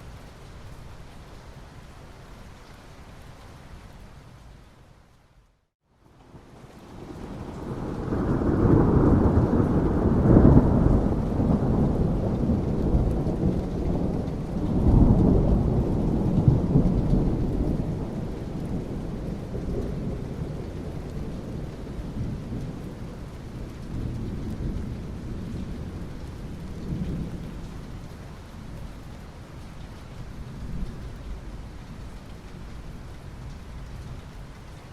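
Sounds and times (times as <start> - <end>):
steady rain: 0.0 - 34.9
thunder rumbling: 6.9 - 28.8.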